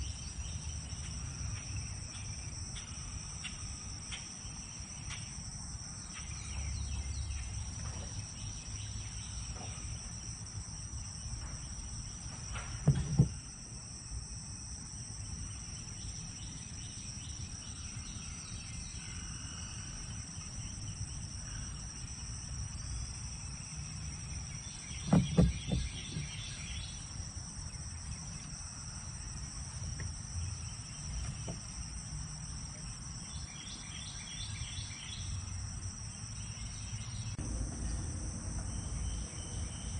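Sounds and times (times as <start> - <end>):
crickets chirping: 0.0 - 39.9
loud knocks: 12.5 - 13.4, 25.0 - 26.4.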